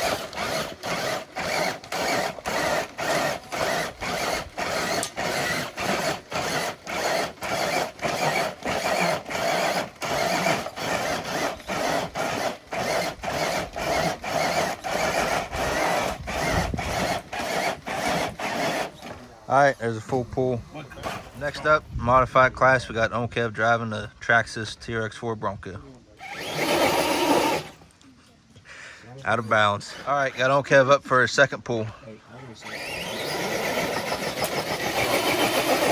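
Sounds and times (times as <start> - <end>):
small electric motor whirring: 0.0 - 19.2, 26.2 - 27.8, 32.6 - 35.9.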